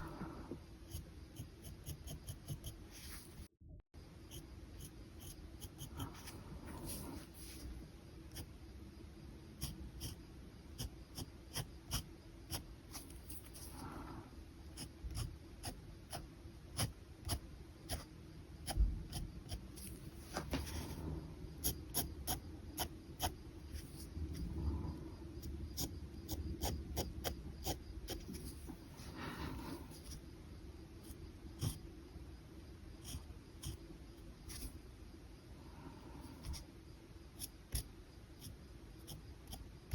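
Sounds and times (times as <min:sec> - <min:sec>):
pen scratching on paper: 0:00.8 - 0:03.4, 0:04.3 - 0:07.7, 0:09.6 - 0:10.2, 0:10.8 - 0:13.9, 0:14.7 - 0:24.5.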